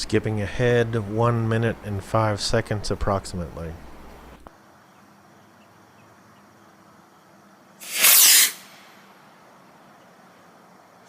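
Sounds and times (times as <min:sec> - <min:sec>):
rocket motor hissing whoosh: 0:07.8 - 0:09.1.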